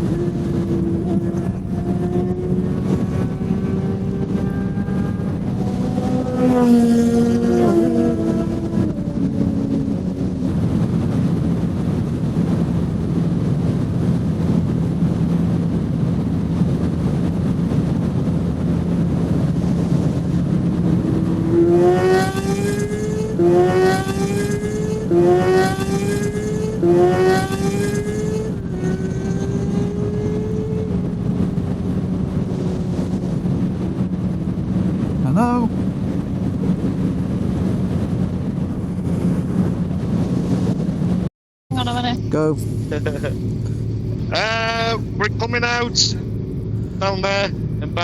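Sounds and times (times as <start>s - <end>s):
motorcycle engine: 0.0s - 48.0s
wind and road noise: 0.0s - 48.0s.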